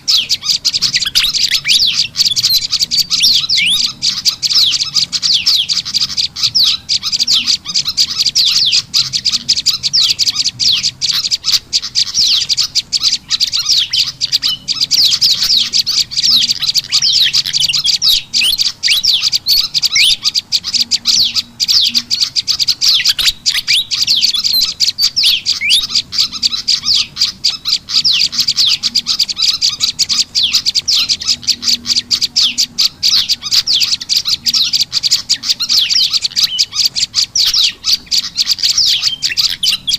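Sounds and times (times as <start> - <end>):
rapid high bird chirps: 0.0 - 39.9.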